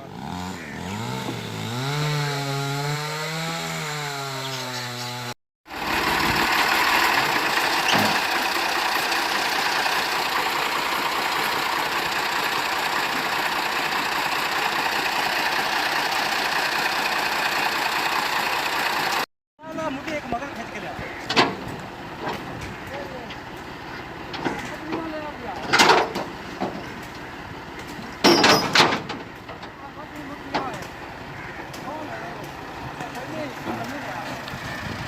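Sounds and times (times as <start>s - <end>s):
chainsaw engine running: 0.0s - 19.3s
chainsaw cutting wood: 0.1s - 19.3s.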